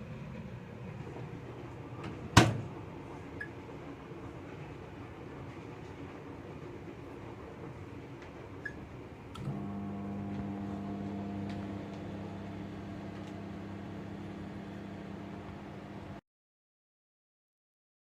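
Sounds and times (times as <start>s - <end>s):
microwave oven humming: 8.6s - 16.2s
microwave click: 9.4s - 16.2s.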